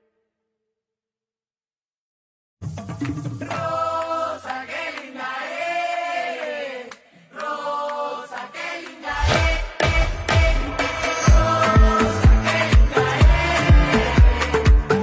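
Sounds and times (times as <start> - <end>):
voices singing together: 3.4 - 15.0
heavy bass beat: 9.2 - 15.0.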